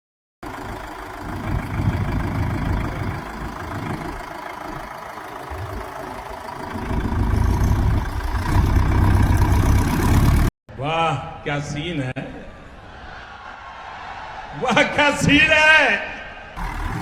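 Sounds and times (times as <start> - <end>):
diesel tractor engine running: 0.4 - 10.5, 16.6 - 17.0.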